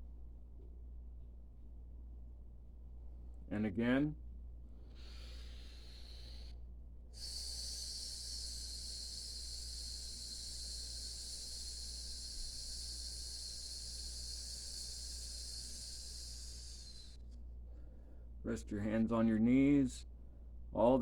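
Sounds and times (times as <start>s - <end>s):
person exhaling long hiss: 4.8s - 6.6s, 7.2s - 17.2s.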